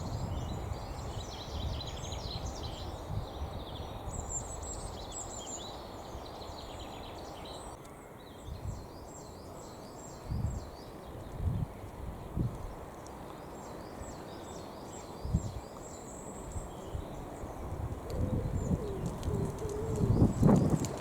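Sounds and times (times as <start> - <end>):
small birds chirping: 0.0 - 21.0
pigeon cooing: 18.0 - 21.0.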